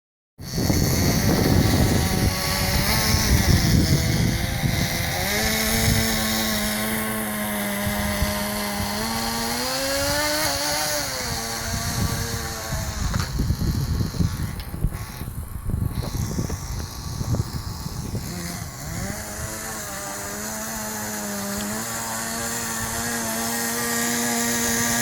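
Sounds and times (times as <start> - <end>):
small nitro engine running: 0.4 - 25.0.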